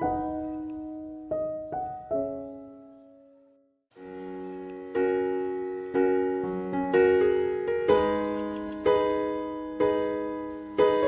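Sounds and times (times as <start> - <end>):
piano music: 0.0 - 3.4, 4.0 - 11.0
thin very high steady tone: 0.0 - 3.4, 4.0 - 7.5, 8.2 - 9.2, 10.6 - 11.0.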